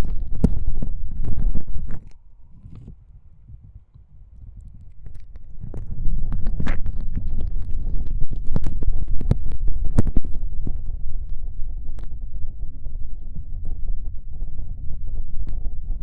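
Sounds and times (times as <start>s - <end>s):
low rumble: 0.0s - 16.0s
wet tongue clicks and smacks: 3.9s - 10.9s.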